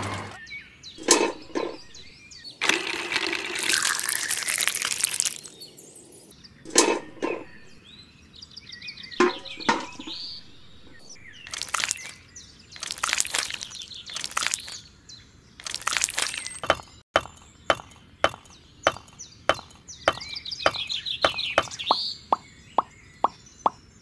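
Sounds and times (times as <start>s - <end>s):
birds chirping faintly: 0.0s - 24.0s
tin bucket taps and knocks: 9.2s - 10.2s.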